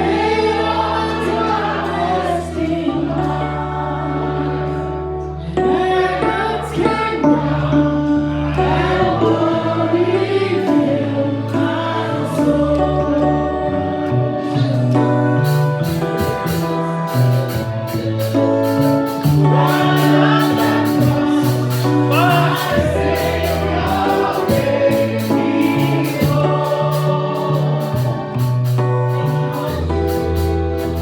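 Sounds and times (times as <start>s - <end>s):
band accompaniment: 0.0s - 31.0s
group singing worship song: 0.0s - 31.0s
held bass notes: 0.0s - 31.0s
sharp percussion hits: 15.5s - 31.0s.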